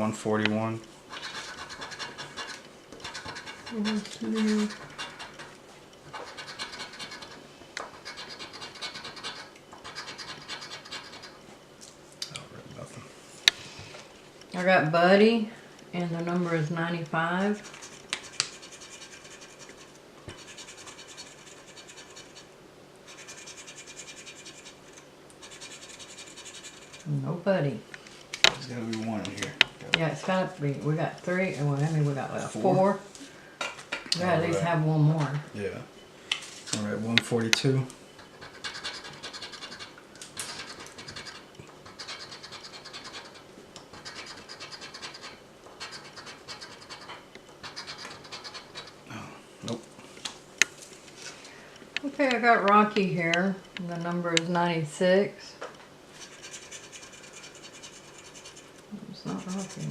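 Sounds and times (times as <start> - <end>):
lottery ticket being scratched: 1.1 - 11.4, 16.3 - 27.3, 28.4 - 32.9, 34.2 - 34.8, 36.4 - 49.0, 56.1 - 59.9.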